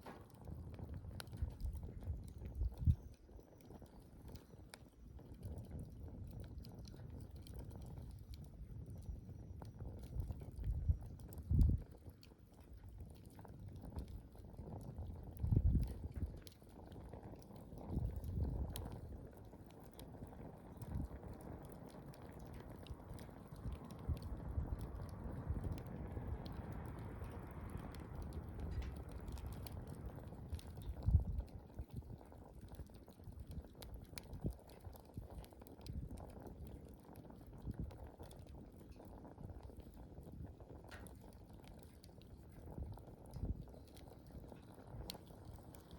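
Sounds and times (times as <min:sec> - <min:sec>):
campfire crackling: 0:00.0 - 0:45.9
flame surges: 0:20.0 - 0:32.9.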